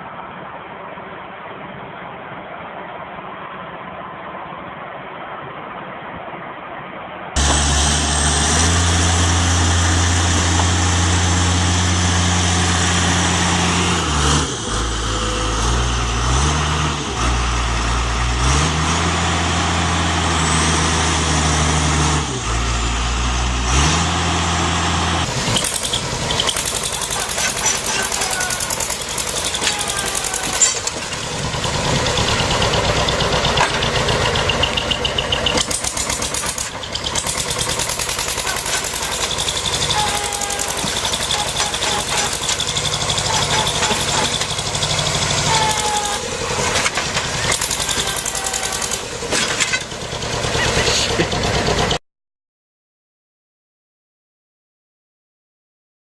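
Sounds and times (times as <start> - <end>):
heavy diesel engine revving: 7.4 - 52.0
rough rattling engine: 7.4 - 52.0.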